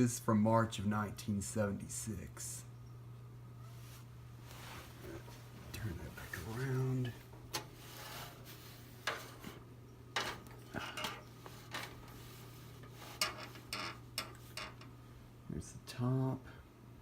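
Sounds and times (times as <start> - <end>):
fan being handled clicks and knocks: 6.5 - 15.0.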